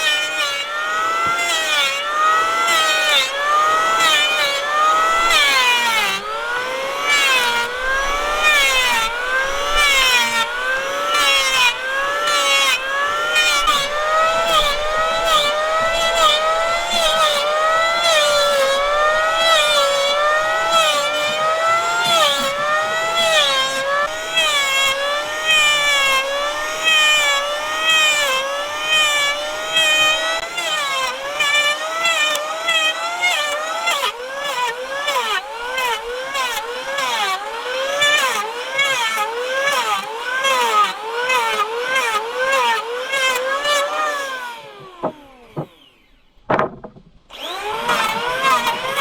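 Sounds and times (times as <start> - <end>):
saw cutting wood: 0.0 - 49.0.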